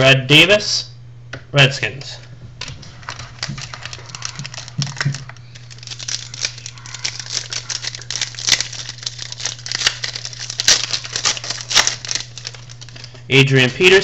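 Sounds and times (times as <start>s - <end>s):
card snaps: 2.6s - 13.1s
foil wrappers crinkling: 2.6s - 14.0s.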